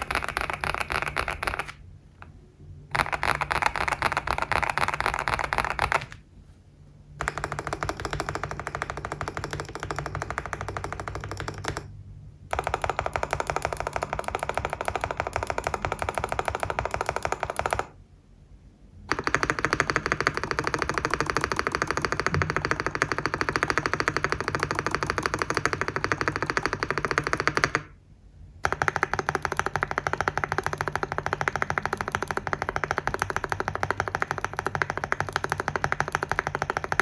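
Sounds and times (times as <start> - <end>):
mechanical keyboard typing: 0.0 - 6.2, 7.2 - 11.9, 12.5 - 18.0, 19.1 - 28.0, 28.6 - 37.0.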